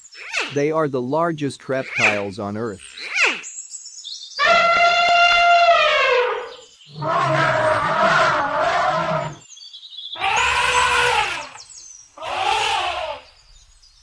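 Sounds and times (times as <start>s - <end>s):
animal calling: 1.8s - 2.3s, 4.4s - 9.4s, 10.2s - 13.4s.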